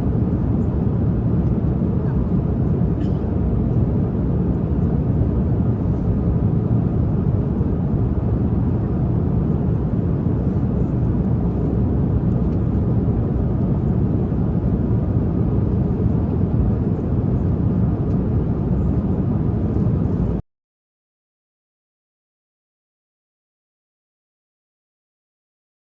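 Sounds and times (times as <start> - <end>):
airliner cabin rumble: 0.0 - 20.4.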